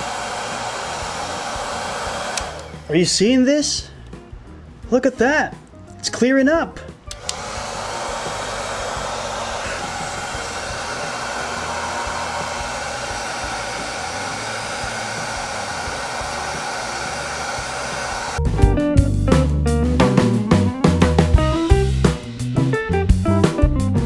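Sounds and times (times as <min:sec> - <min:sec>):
hair dryer blowing: 0:00.0 - 0:02.9, 0:07.1 - 0:18.4.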